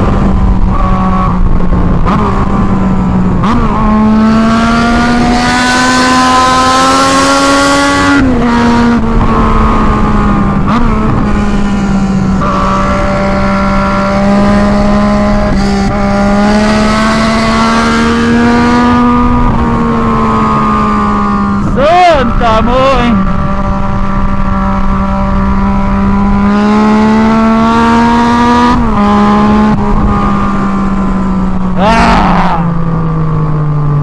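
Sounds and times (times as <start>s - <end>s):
loud motorcycle engine: 0.0s - 34.0s
wind rushing over microphone: 0.0s - 34.0s.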